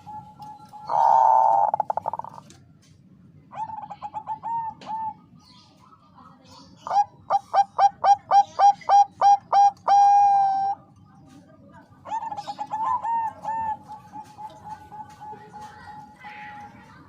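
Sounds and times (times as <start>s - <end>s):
dove cooing: 0.0s - 2.5s, 3.5s - 5.4s, 6.8s - 10.9s, 12.0s - 17.0s.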